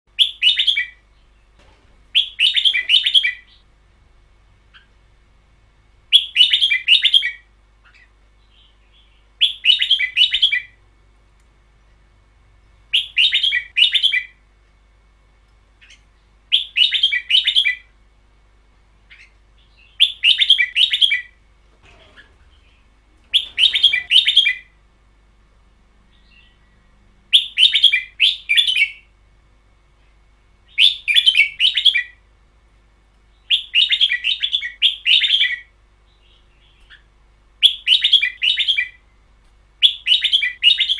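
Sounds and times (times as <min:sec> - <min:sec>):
bird singing bright phrases: 0:00.1 - 0:03.8, 0:06.1 - 0:10.8, 0:12.9 - 0:14.5, 0:15.8 - 0:17.9, 0:19.0 - 0:24.8, 0:26.1 - 0:29.2, 0:30.6 - 0:32.2, 0:33.2 - 0:39.2, 0:39.8 - 0:40.9.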